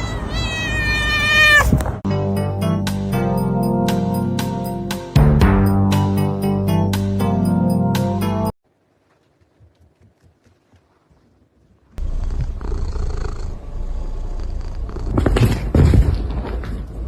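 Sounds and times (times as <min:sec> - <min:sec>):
cat purring: 0:12.0 - 0:15.4.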